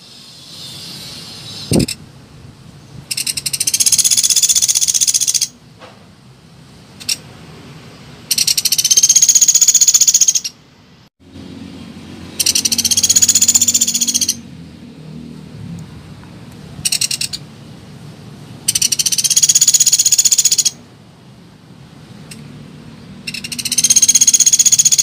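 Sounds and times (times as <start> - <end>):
woodpecker rattling call: 3.1 - 5.6, 8.3 - 10.6, 12.4 - 14.4, 16.8 - 17.4, 18.6 - 20.8, 23.2 - 25.0.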